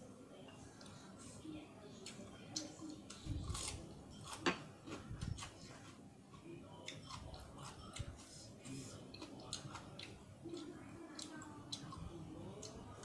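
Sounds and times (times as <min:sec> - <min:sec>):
chewing and biting food: 0:02.6 - 0:05.7, 0:06.3 - 0:13.0.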